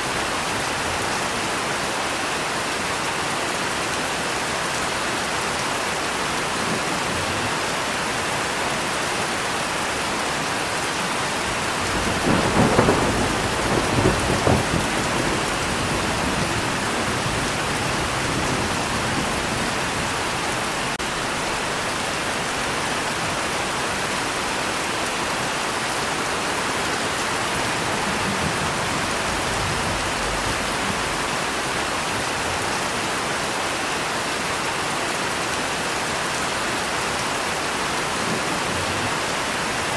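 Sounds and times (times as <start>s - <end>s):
heavy rain: 0.0s - 39.9s
thunder rumbling and crackling: 11.5s - 21.6s, 26.9s - 32.6s.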